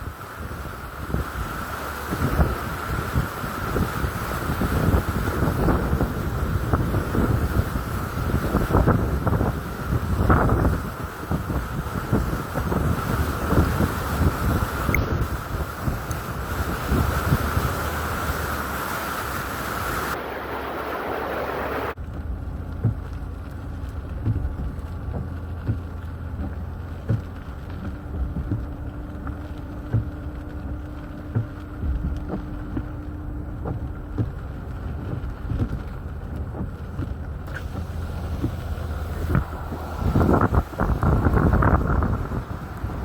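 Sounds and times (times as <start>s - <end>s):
low buffeting rumble: 0.0s - 43.0s
wind and rain hiss on microphone: 0.0s - 43.0s
small taps: 24.1s - 30.2s.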